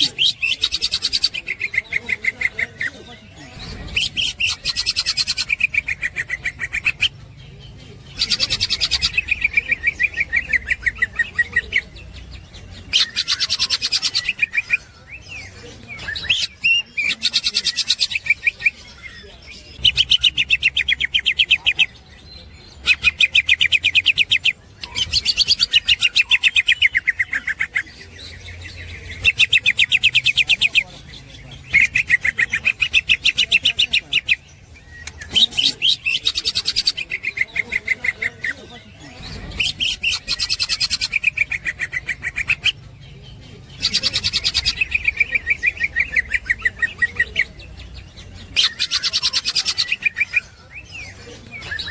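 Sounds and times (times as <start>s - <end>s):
bird chattering song: 0.0s - 51.9s.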